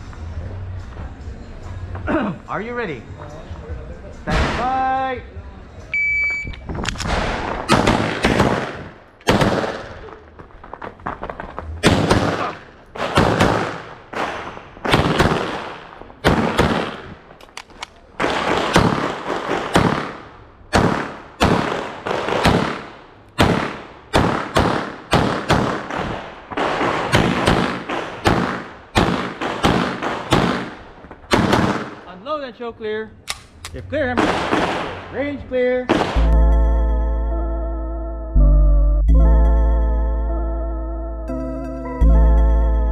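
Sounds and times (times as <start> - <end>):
pistol shots: 7.0 - 10.2, 11.8 - 32.1, 33.3 - 35.3, 35.9 - 36.3.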